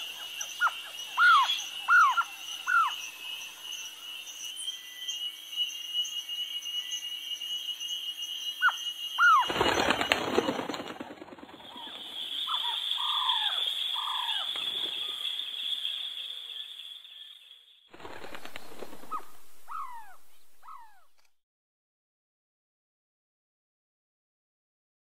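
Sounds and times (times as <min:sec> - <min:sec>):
steady high-pitched buzz: 0:00.0 - 0:21.1
bird calls sliding downward: 0:04.4 - 0:17.2, 0:18.0 - 0:21.3
bird wings flapping: 0:09.2 - 0:15.4, 0:17.9 - 0:21.2.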